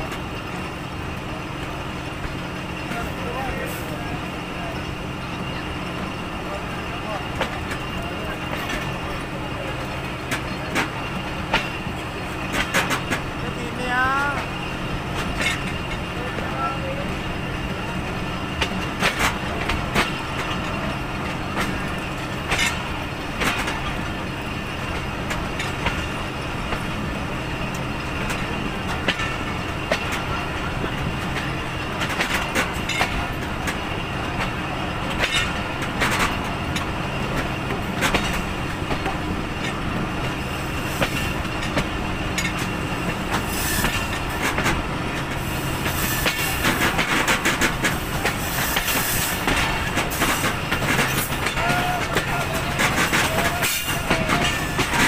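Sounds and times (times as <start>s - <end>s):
train coach rumbling on track: 0.0s - 55.0s
wheels clicking over rail joints: 14.2s - 55.0s.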